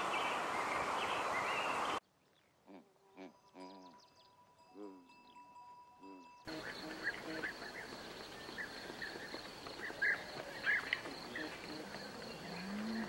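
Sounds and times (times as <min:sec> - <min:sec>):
outdoor hiss: 0:00.0 - 0:02.0, 0:06.5 - 0:13.0
chickens clucking: 0:06.5 - 0:13.0
insect buzz: 0:06.5 - 0:13.0.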